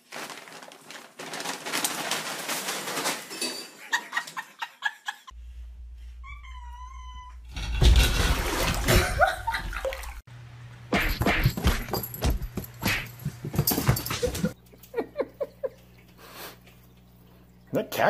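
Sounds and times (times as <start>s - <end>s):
person laughing: 3.8s - 5.4s, 8.9s - 10.1s, 14.0s - 15.8s
animal yipping: 6.2s - 7.5s.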